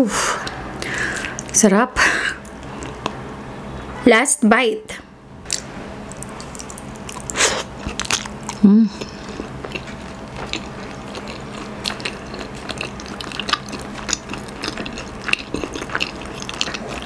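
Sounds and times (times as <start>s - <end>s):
wet chewing clicks and smacks: 2.4s - 3.2s, 5.5s - 8.6s, 9.4s - 17.0s.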